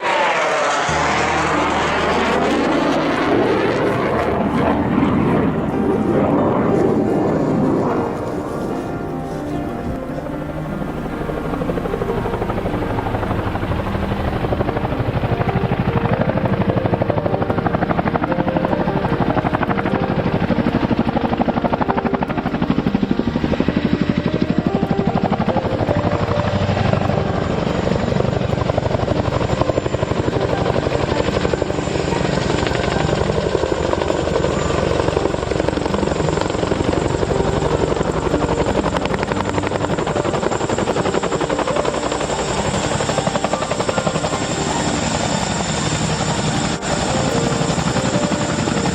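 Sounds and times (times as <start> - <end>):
helicopter rotors chopping: 0.0 - 48.9
thin high whine: 0.0 - 48.9.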